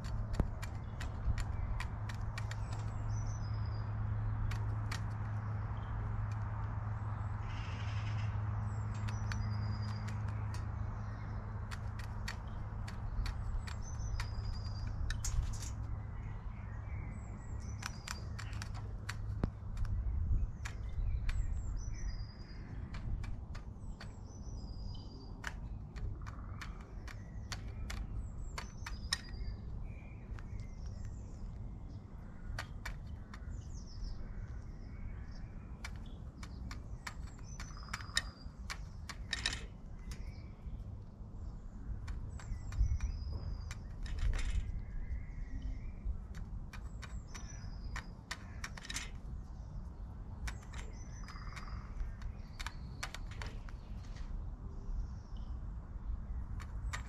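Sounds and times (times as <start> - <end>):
sharp clicks and taps: 0.0 - 3.6, 4.4 - 5.5, 8.9 - 11.0, 11.6 - 15.9, 17.6 - 24.7, 25.3 - 31.6, 32.2 - 33.9, 35.7 - 41.1, 41.9 - 44.8, 46.1 - 49.4, 50.3 - 54.2, 56.5 - 57.0
small birds chirping: 0.0 - 57.0.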